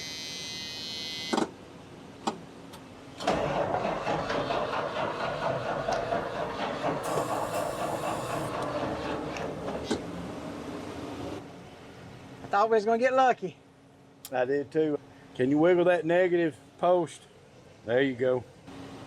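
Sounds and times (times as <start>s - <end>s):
truck starter cranking: 3.2s - 8.9s.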